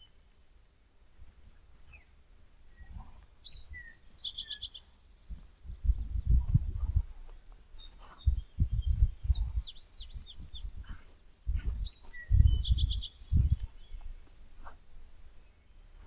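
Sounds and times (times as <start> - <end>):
songbirds chirping: 0.0 - 16.0
dull low thumps: 5.2 - 14.8.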